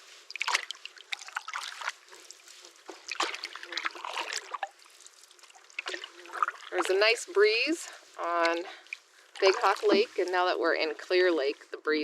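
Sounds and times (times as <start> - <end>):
paddle splashing in water: 0.0 - 10.4
water dripping off paddle: 0.3 - 7.6, 8.3 - 10.4.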